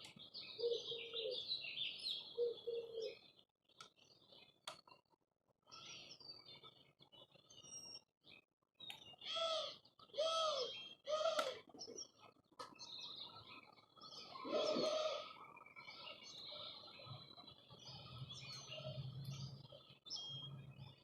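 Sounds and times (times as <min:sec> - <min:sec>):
small birds chirping: 0:00.0 - 0:21.0
harsh bird calls: 0:00.2 - 0:03.3, 0:09.1 - 0:12.2, 0:12.8 - 0:21.0.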